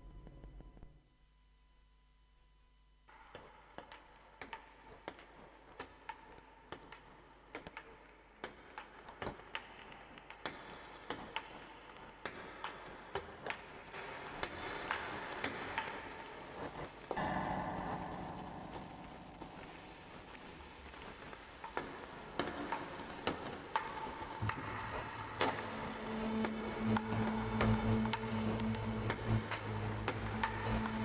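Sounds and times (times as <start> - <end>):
fuller electronic tone: 25.8 - 31.0.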